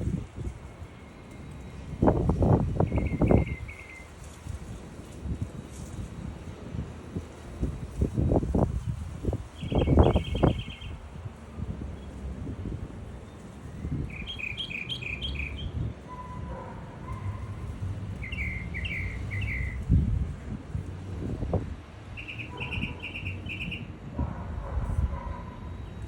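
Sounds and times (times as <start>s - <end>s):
small birds chirping: 2.8s - 4.4s, 8.8s - 11.0s, 13.2s - 15.9s, 17.4s - 19.9s, 22.1s - 23.9s.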